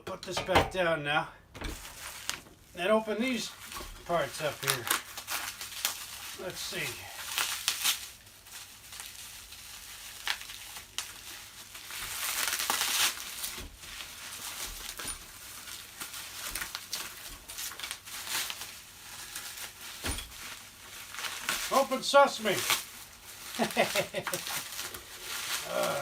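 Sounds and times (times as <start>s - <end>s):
packaging crinkling and rustling: 1.6s - 26.0s.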